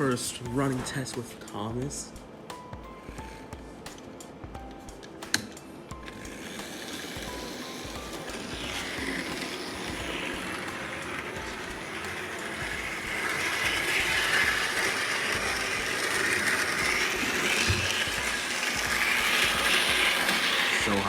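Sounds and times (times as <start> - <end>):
model train electric motor: 5.3 - 21.0.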